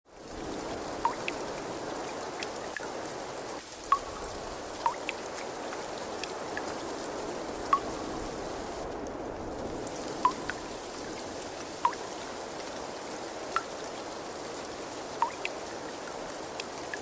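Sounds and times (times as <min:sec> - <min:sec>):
running water trickling: 0:00.1 - 0:17.0
water droplet plinks: 0:01.0 - 0:01.4, 0:03.9 - 0:04.2, 0:04.8 - 0:05.2, 0:07.7 - 0:07.9, 0:10.2 - 0:10.6, 0:11.8 - 0:12.1, 0:15.2 - 0:15.6.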